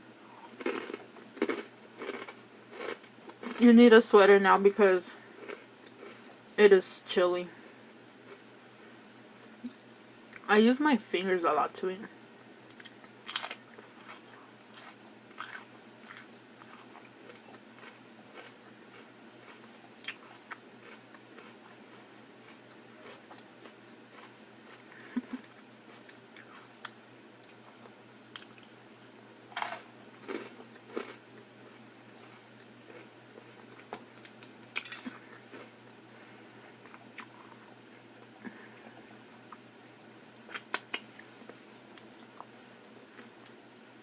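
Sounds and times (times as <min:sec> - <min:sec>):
person chewing food: 0:00.3 - 0:03.6, 0:05.4 - 0:06.5, 0:12.7 - 0:28.7, 0:29.5 - 0:39.6
food crunching: 0:00.4 - 0:03.7, 0:05.4 - 0:06.5, 0:12.7 - 0:28.8, 0:29.5 - 0:39.6
wet mouth clicks: 0:40.4 - 0:41.4.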